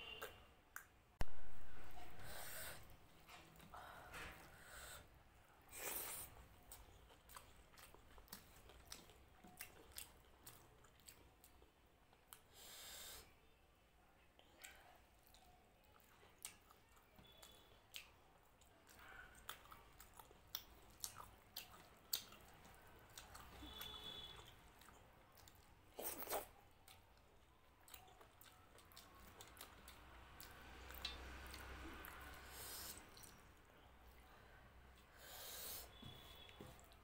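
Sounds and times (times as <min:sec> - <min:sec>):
person chewing: 0:05.7 - 0:12.7, 0:14.4 - 0:33.4.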